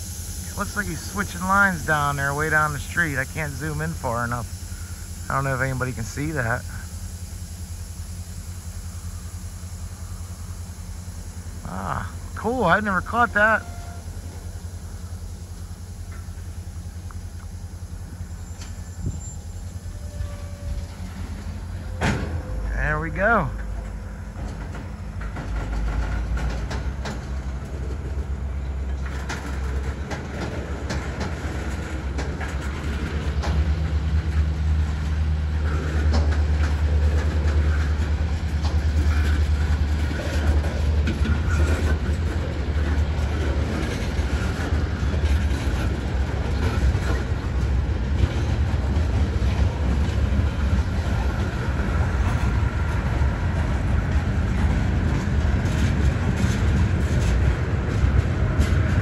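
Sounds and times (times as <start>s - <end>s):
freight train rumbling by: 0.0s - 59.0s
wheels clicking over rail joints: 15.9s - 59.0s.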